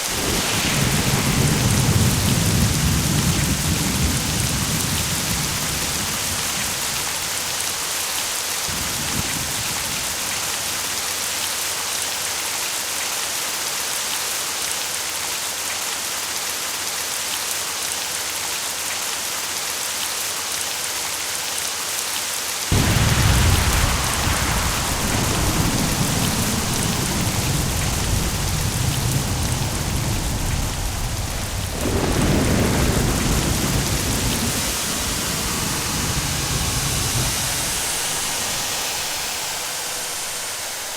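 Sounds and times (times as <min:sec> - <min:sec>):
deep rumble of thunder: 0:00.0 - 0:11.3, 0:22.7 - 0:40.9
rain hissing: 0:00.0 - 0:13.6, 0:22.5 - 0:40.9.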